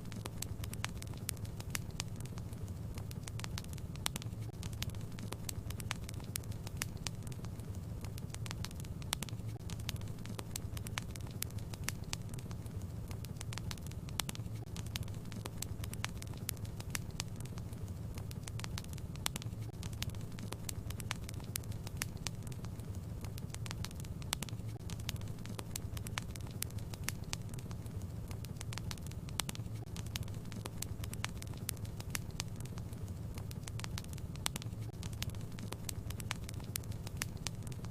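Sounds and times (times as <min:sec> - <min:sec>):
fireplace fire crackling: 0:00.0 - 0:37.9.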